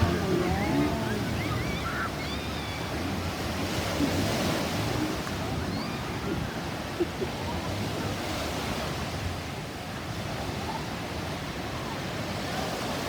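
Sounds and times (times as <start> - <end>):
sea surf rushing: 0.0 - 9.3.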